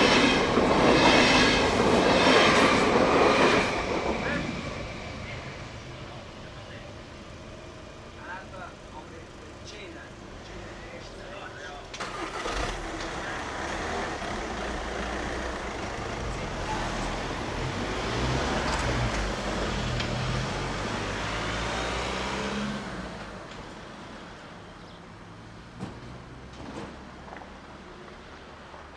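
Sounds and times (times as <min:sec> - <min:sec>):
vehicle passing close by: 0:12.0 - 0:23.4.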